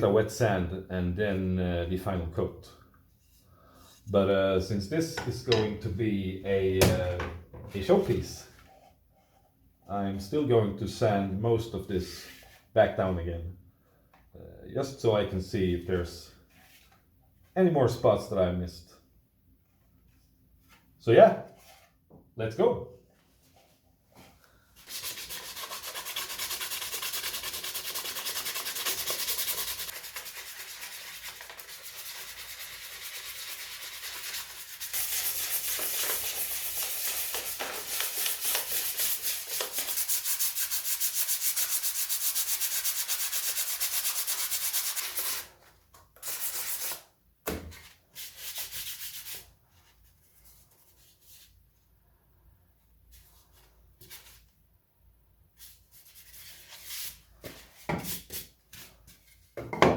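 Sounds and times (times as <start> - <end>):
sandpaper rubbing: 24.8 - 45.5, 46.2 - 47.0.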